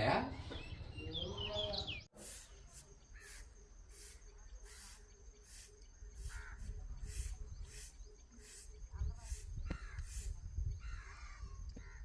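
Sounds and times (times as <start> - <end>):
crows cawing: 3.2 - 3.4, 6.2 - 6.8, 9.7 - 10.2, 10.8 - 12.0.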